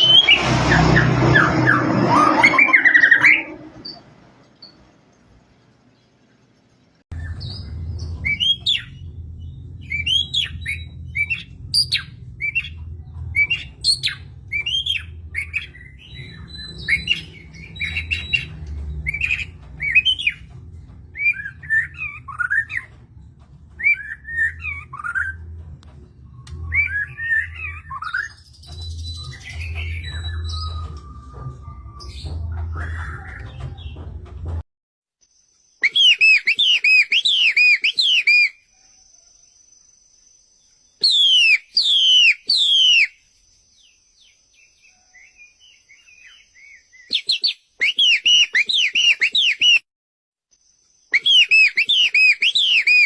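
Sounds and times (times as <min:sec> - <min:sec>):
low hum: 0:00.0 - 0:34.6
bird singing whistled phrases: 0:26.5 - 0:33.5, 0:35.8 - 0:38.6, 0:41.0 - 0:43.2, 0:44.9 - 0:49.8, 0:51.1 - 0:53.0.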